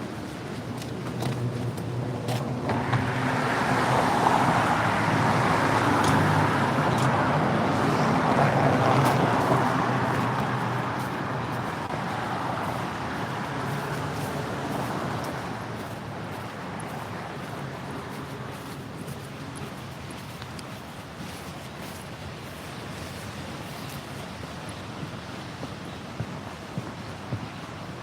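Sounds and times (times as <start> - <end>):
vehicle passing by: 1.4 - 18.3.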